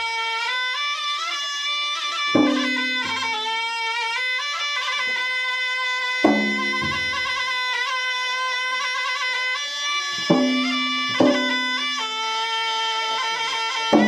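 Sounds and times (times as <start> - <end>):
shawm playing reedy melody: 0.0 - 14.0
heavy ringing drum stroke: 2.4 - 3.4, 6.2 - 7.4, 10.3 - 12.0.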